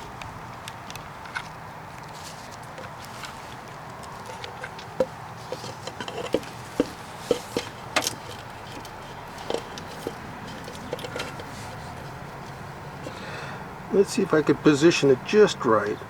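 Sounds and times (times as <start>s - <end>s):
light clicks and knocks: 0.0s - 13.2s.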